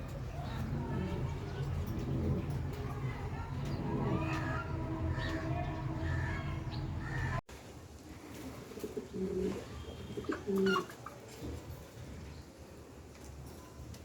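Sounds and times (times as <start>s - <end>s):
pigeons cooing: 0.0s - 7.4s, 8.6s - 11.7s
steady background sound: 0.7s - 7.4s.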